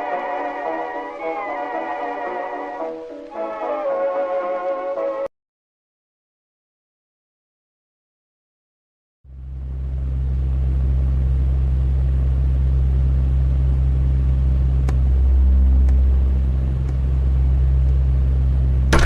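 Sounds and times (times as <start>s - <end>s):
loud low drone: 9.3s - 19.0s.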